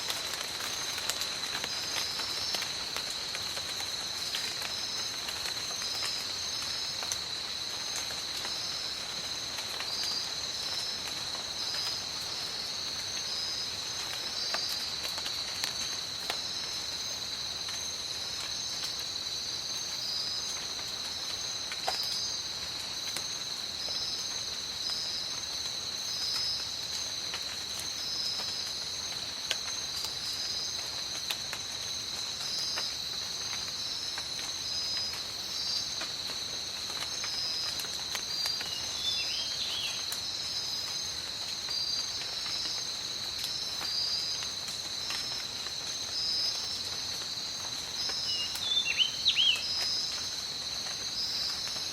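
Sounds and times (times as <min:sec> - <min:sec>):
insect chorus chirping: 0:00.0 - 0:51.9
rain hiss: 0:00.0 - 0:51.9.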